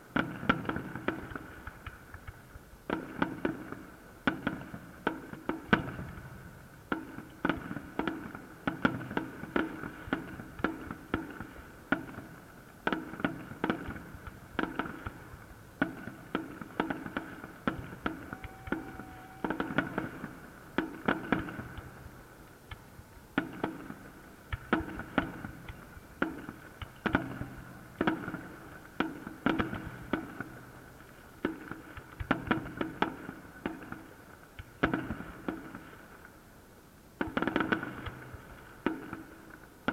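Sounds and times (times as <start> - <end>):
fireworks bangs: 6.9 - 34.1.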